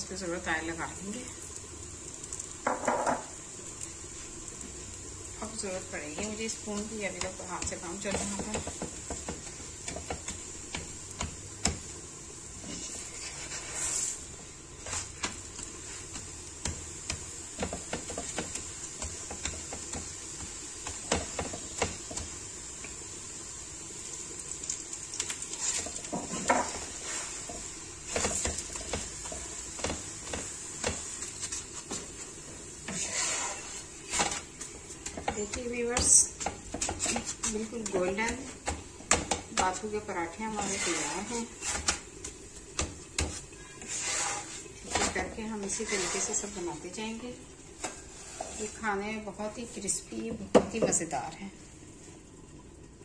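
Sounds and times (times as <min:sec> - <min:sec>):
flatbread sizzling in oil: 0:00.0 - 0:53.0
metal spoon scraping a pan: 0:12.6 - 0:14.2, 0:32.9 - 0:38.6, 0:40.5 - 0:42.0, 0:43.2 - 0:46.7, 0:47.8 - 0:48.8.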